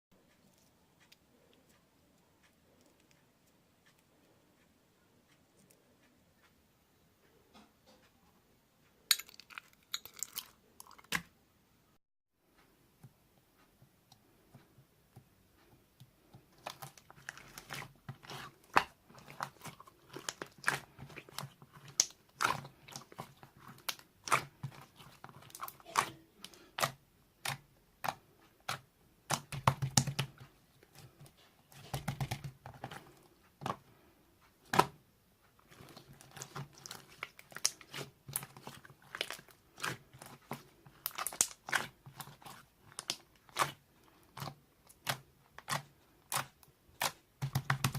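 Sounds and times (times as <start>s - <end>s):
slime squishing with clicks and pops: 15.2s - 33.9s, 35.7s - 47.9s.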